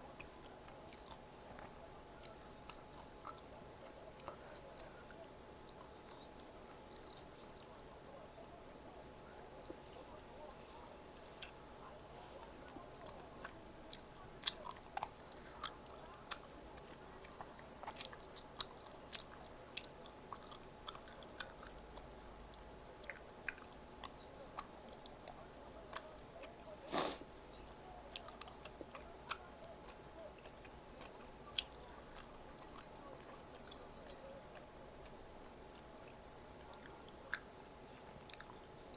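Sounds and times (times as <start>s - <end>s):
chewing and biting snacks: 9.0s - 22.1s, 28.0s - 38.9s.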